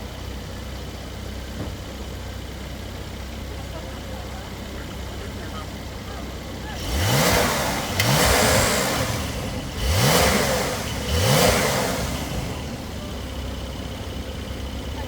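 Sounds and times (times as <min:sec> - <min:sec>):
car engine idling: 0:00.0 - 0:15.0
car engine revving: 0:04.3 - 0:15.0.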